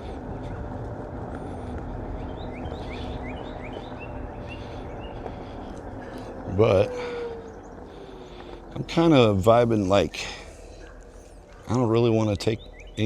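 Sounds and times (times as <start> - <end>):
wheel and wind rumble: 0.0 - 13.0
bird chirping rising: 2.0 - 13.0.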